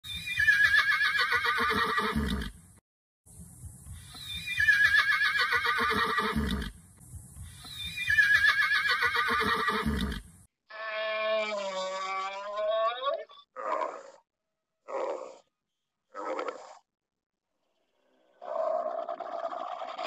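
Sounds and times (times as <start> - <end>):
horse whinnying: 0.1 - 2.6, 4.3 - 6.7, 7.7 - 14.1.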